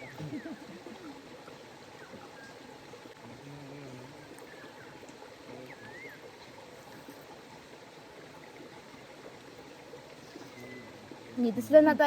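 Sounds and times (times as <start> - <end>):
forest stream running: 0.0 - 12.0.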